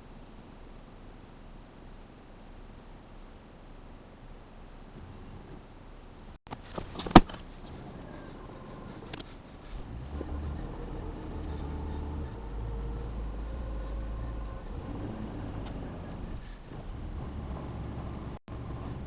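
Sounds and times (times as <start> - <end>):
vehicle engine running: 6.5 - 19.0.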